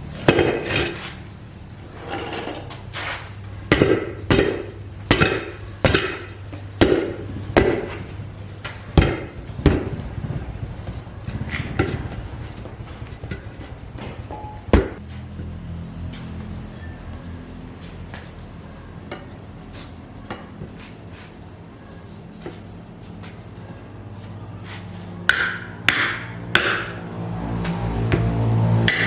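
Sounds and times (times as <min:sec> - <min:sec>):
hammer striking metal: 0:03.7 - 0:08.0, 0:25.3 - 0:27.0.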